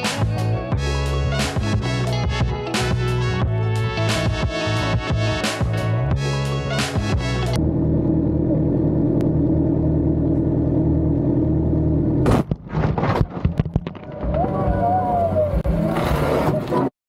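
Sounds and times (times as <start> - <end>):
vehicle engine running: 4.7 - 12.6.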